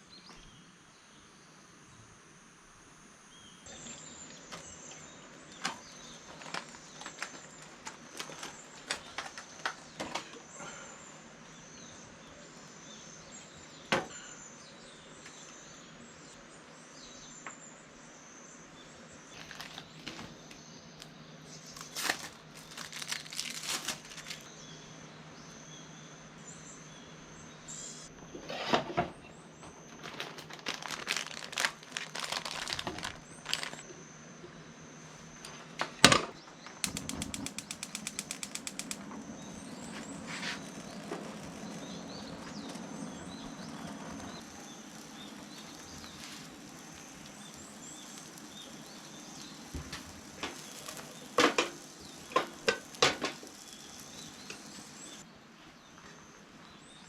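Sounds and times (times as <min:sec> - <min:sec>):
quick run of ticks: 0:36.7 - 0:55.2
cooking gear clicks and knocks: 0:45.1 - 0:54.7.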